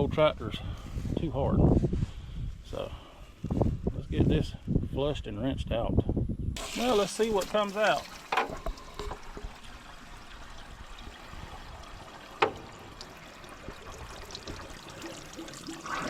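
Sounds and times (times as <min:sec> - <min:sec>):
water trickling from radiator: 0:06.6 - 0:16.0.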